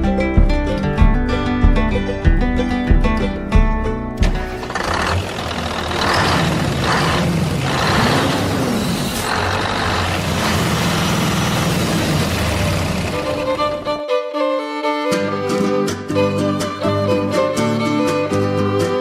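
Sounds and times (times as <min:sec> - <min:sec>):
loud machine noise: 0:04.6 - 0:14.0.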